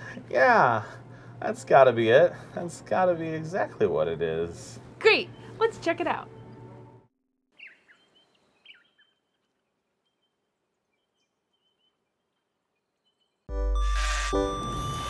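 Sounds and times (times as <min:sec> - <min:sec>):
faint bird chirps: 0:07.6 - 0:13.5.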